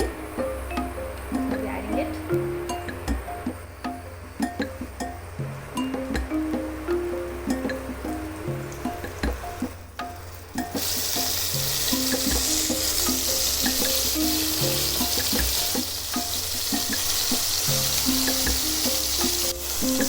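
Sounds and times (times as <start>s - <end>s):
soft plucked background music: 0.0s - 20.0s
chicken sizzling in oil: 10.2s - 20.0s.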